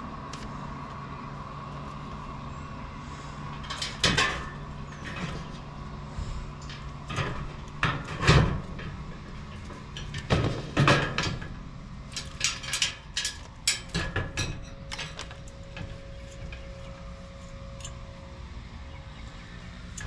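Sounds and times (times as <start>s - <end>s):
knocks and clunks: 3.6s - 11.6s.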